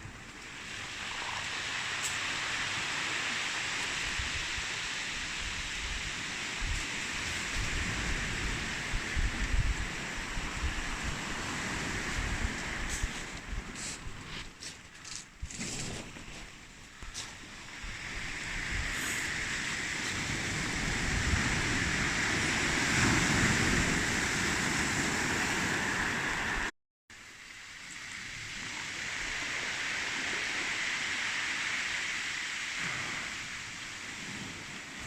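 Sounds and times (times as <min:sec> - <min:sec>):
wind rumbling on microphone: 0:00.0 - 0:26.7
sea surf washing onto beach: 0:00.0 - 0:35.0.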